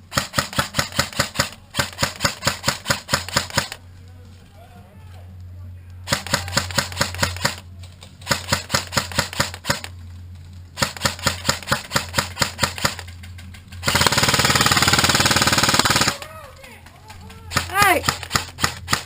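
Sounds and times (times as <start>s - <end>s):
airsoft gun shots: 0.1s - 3.8s, 6.1s - 7.6s, 8.2s - 9.9s, 10.8s - 13.0s, 17.5s - 19.0s.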